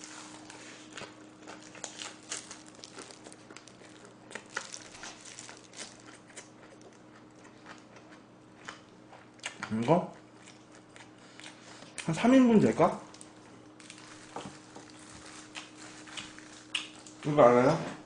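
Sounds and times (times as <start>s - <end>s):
person chewing crunchy food: 0.0s - 12.1s, 13.1s - 17.3s.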